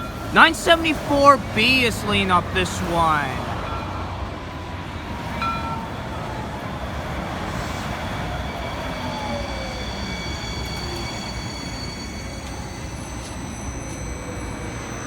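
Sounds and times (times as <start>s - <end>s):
light rail train rumble and hiss: 3.4s - 15.0s.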